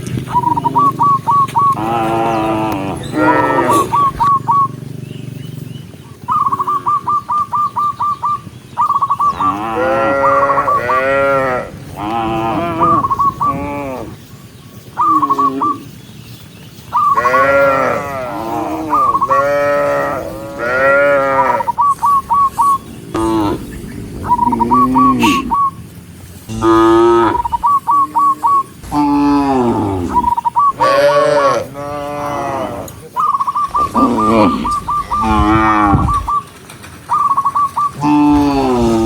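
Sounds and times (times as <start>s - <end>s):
cows mooing: 1.7s - 4.3s, 9.3s - 14.2s, 17.1s - 21.8s, 22.5s - 36.4s, 37.9s - 39.0s.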